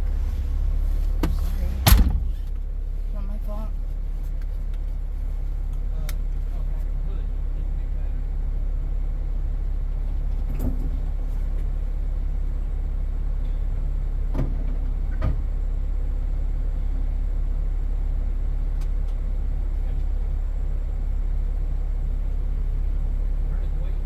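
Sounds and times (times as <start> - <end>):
vehicle clunks: 0.0 - 5.0, 10.0 - 11.8, 13.3 - 15.8
vehicle engine droning: 0.0 - 24.0.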